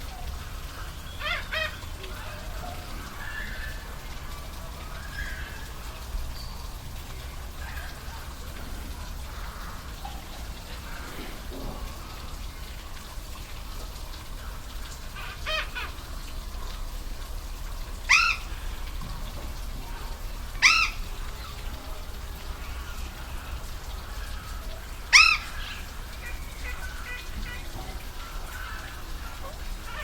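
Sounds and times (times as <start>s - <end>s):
bird calling: 0.0s - 13.1s, 18.0s - 19.0s, 19.8s - 30.0s
waterfall rushing: 0.0s - 30.0s.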